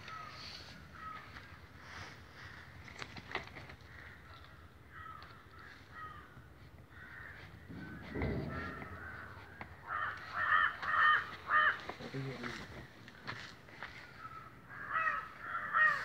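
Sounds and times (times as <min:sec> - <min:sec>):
low muffled thump: 0:07.7 - 0:09.8.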